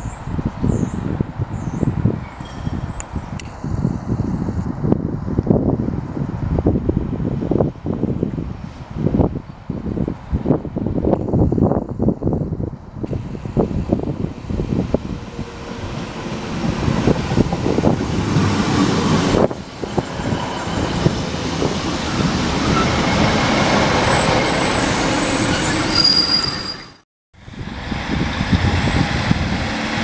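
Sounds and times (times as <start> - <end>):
train rumbling: 12.6 - 30.0.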